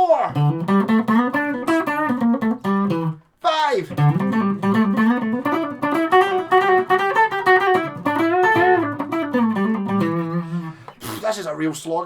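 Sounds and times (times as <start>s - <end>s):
electric guitar lick: 0.3s - 11.3s.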